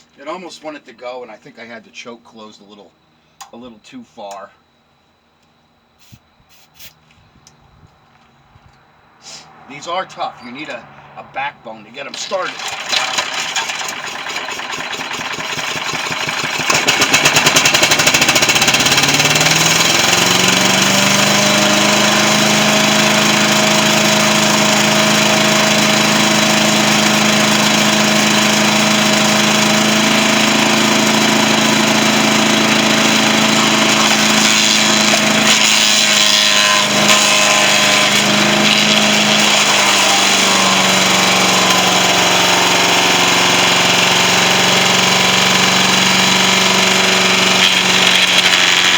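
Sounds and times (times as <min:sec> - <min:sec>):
small engine starting and running: 0:12.0 - 0:48.9.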